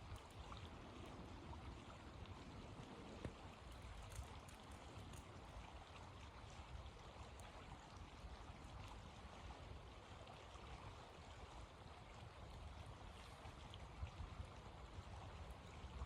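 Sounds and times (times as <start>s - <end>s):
faint ticks: 0.0s - 0.6s, 3.0s - 5.6s
faint wind rumble: 0.0s - 16.0s.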